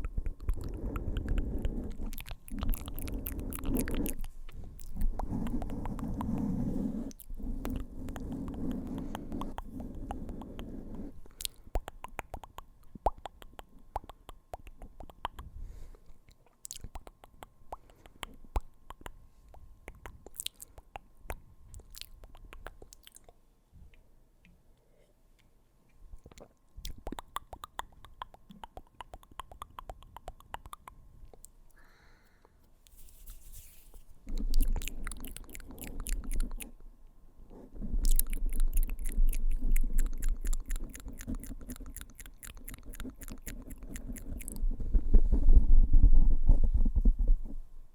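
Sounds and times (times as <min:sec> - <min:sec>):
wet mouth clicks and smacks: 0:00.0 - 0:06.4, 0:07.1 - 0:10.7, 0:11.3 - 0:15.5, 0:16.2 - 0:23.4, 0:26.2 - 0:31.6, 0:34.3 - 0:36.8, 0:38.0 - 0:44.6.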